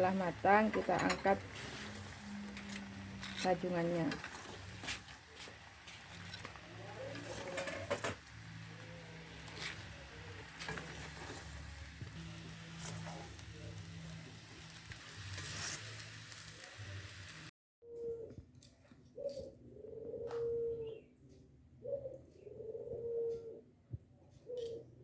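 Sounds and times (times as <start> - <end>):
spatula scraping a pan: 0.0 - 13.4
crabs sizzling in a pan: 0.0 - 17.5.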